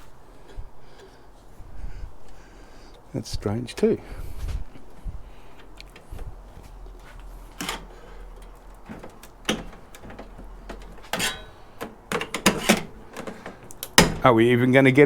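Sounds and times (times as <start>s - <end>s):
clicks and knocks on metal case: 7.6s - 14.3s.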